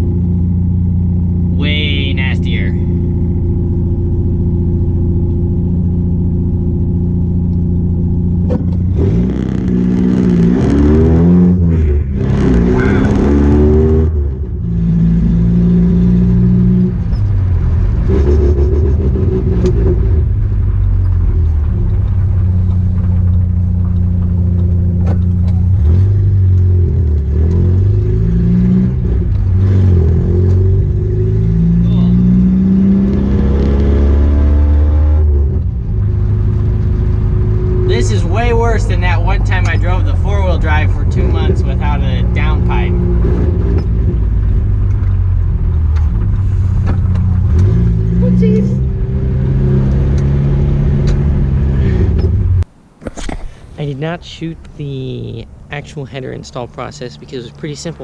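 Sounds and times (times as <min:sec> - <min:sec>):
loud truck engine revving: 0:08.8 - 0:17.0, 0:24.9 - 0:52.6.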